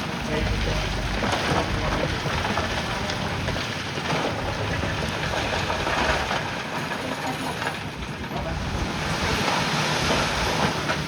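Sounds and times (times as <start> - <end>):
bulldozer rumbling: 0.0 - 11.0.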